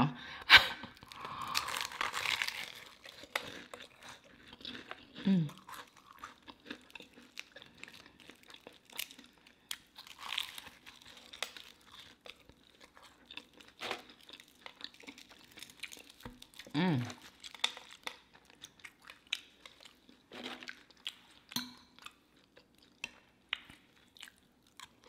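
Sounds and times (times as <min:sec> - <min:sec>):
crunchy food chewing: 0:00.9 - 0:25.0
person humming: 0:05.2 - 0:05.5, 0:16.8 - 0:17.1.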